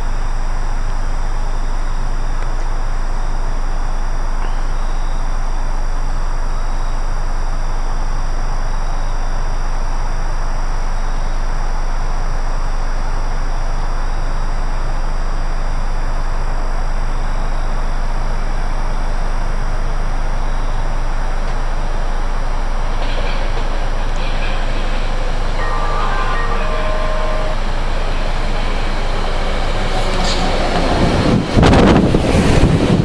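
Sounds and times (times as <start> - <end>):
low hum: 0.0 - 33.0
train approaching: 22.6 - 33.0.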